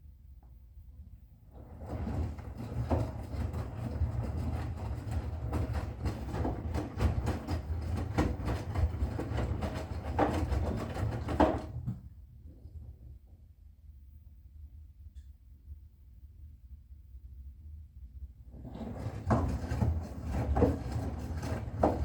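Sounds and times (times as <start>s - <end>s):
laundry tumbling with knocks: 1.7s - 12.1s, 18.6s - 22.0s
washing machine drum turning: 18.6s - 22.0s.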